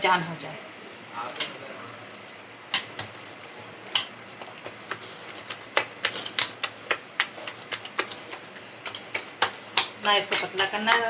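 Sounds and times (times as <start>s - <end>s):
batter being mixed by hand: 3.1s - 11.0s.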